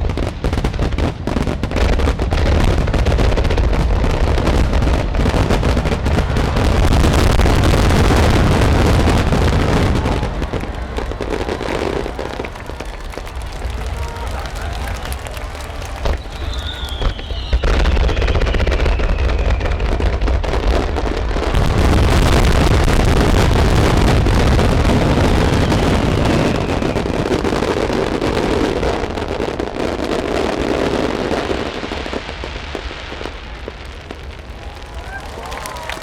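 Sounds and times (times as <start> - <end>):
heavy booms: 2.2 - 18.6, 21.4 - 27.5
rapid crackling: 3.6 - 17.7.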